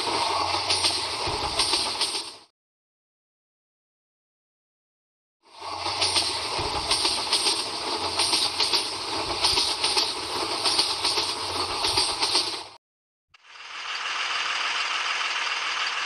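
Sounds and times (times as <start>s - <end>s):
low engine drone: 0.0s - 2.1s, 5.5s - 12.7s
train wheels clattering over rails: 0.0s - 2.5s, 5.7s - 12.8s.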